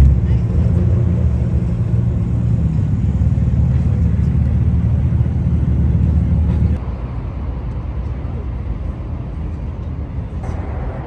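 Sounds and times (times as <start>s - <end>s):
car engine running: 0.0s - 6.8s.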